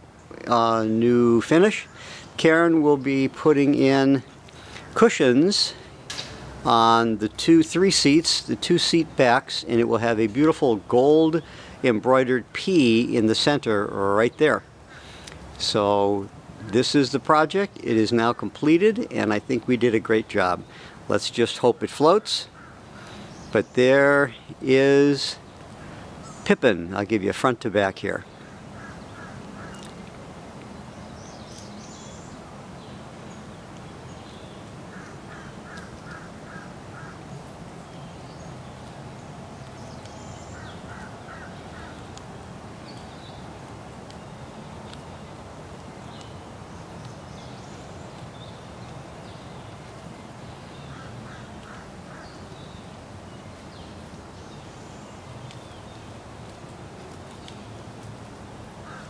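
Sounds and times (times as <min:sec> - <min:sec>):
low background noise: 0:00.0 - 0:59.0
bird giving quick calls: 0:28.3 - 0:30.0, 0:34.9 - 0:37.2.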